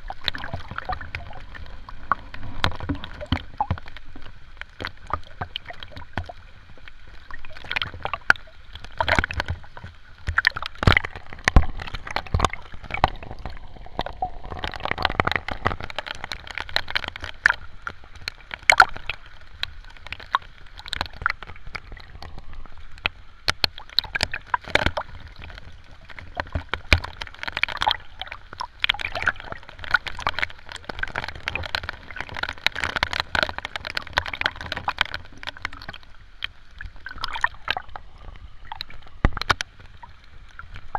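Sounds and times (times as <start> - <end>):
water splashing and gurgling: 0.0 - 40.9.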